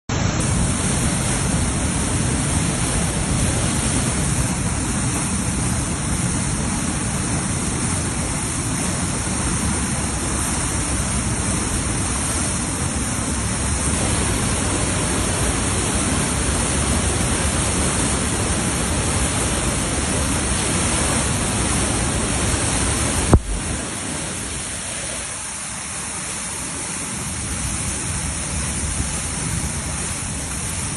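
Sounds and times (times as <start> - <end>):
floodwater rushing: 0.1 - 30.9.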